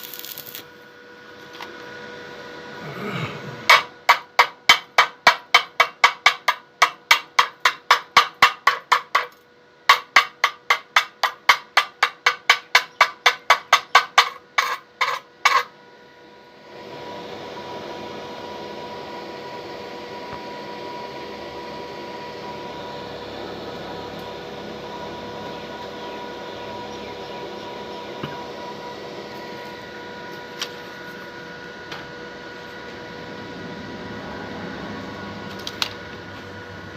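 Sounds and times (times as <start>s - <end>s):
steady hiss: 0.0s - 0.8s
rapid hammer blows on metal: 3.7s - 15.7s.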